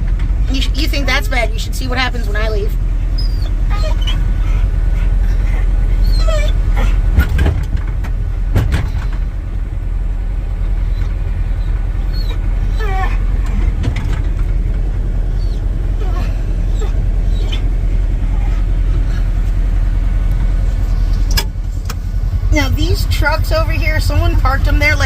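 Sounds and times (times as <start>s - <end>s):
vehicle engine rumbling: 0.0s - 25.0s
dog whining: 3.0s - 7.4s, 10.8s - 13.6s, 15.3s - 19.4s.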